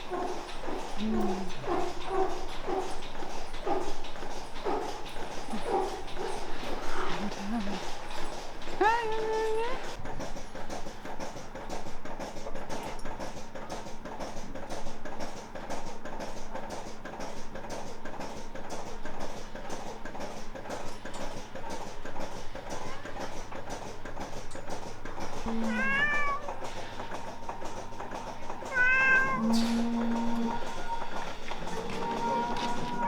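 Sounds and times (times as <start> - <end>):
fast busy background music: 25.4 - 33.0.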